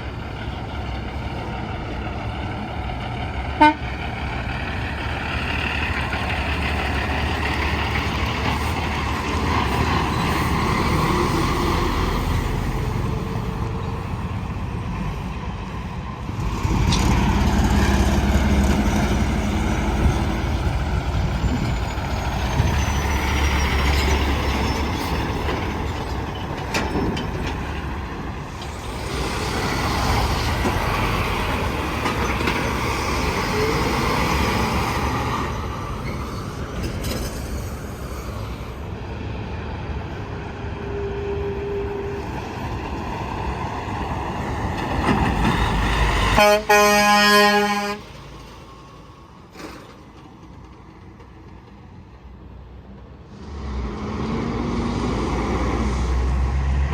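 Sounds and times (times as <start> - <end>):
trucks passing on highway: 0.0 - 56.9
truck horn blast: 3.6 - 4.0, 46.4 - 48.2.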